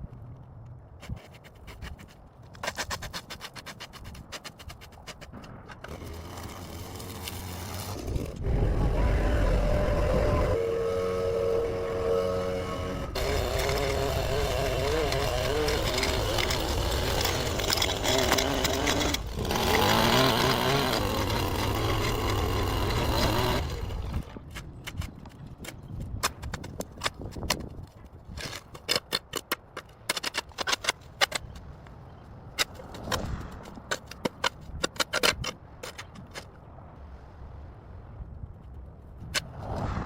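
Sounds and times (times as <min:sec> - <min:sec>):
small petrol engine running: 0:05.8 - 0:24.4.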